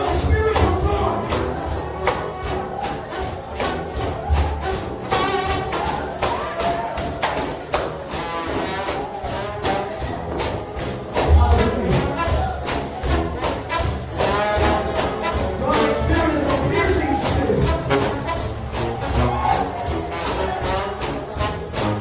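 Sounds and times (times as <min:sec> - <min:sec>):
brass band music: 0:00.0 - 0:22.0
tambourines shaken and struck: 0:00.0 - 0:22.0.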